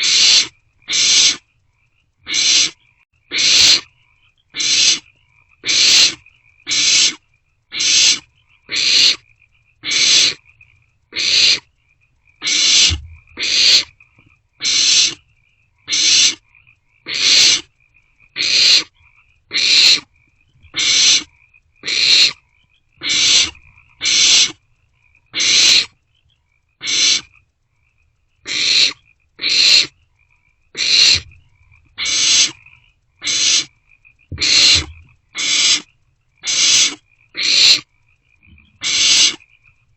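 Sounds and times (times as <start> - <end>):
owlets hissing begging calls: 0.0 - 1.4, 2.3 - 3.9, 4.6 - 9.2, 9.8 - 10.4, 11.2 - 11.6, 12.4 - 13.9, 14.6 - 15.2, 15.9 - 16.4, 17.1 - 17.7, 18.4 - 18.9, 19.5 - 20.1, 20.7 - 22.4, 23.0 - 24.6, 25.4 - 25.9, 26.8 - 27.3, 28.5 - 29.9, 30.8 - 31.3, 32.0 - 32.6, 33.2 - 33.7, 34.3 - 37.9, 38.7 - 39.4.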